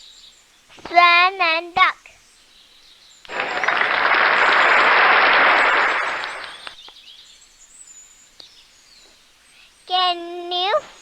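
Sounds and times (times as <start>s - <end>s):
hands clapping: 3.3s - 6.9s.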